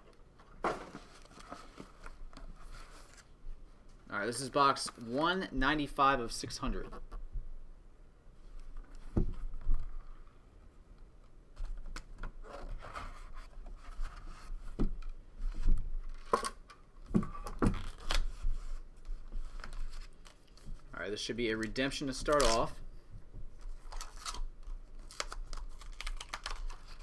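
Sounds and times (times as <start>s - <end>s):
cardboard and plastic rustling: 0.3s - 3.4s, 17.1s - 20.9s.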